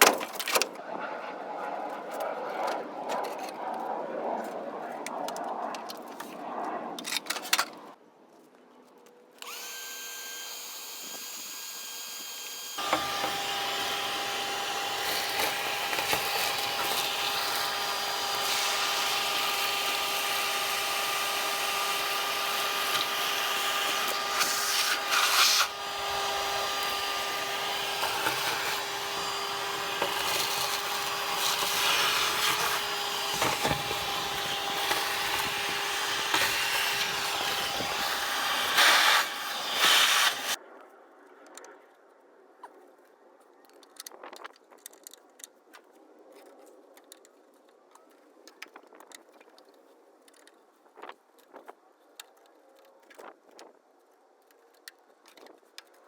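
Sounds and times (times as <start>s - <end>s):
electric power tool whining: 9.4s - 40.6s.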